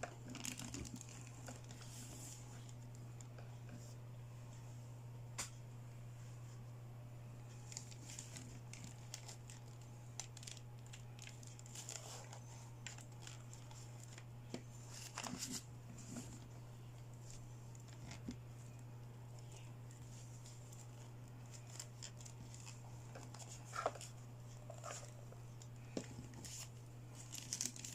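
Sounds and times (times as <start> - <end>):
plastic packaging crinkling: 0.0 - 2.9, 7.6 - 14.3, 19.9 - 27.9
steady low hum: 0.0 - 27.9.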